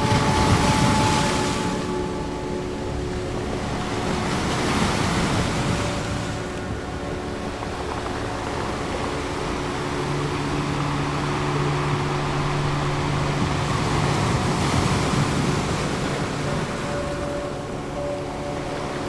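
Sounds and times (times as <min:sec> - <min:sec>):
low synth drone: 0:00.0 - 0:19.0
ocean waves washing: 0:00.0 - 0:19.0.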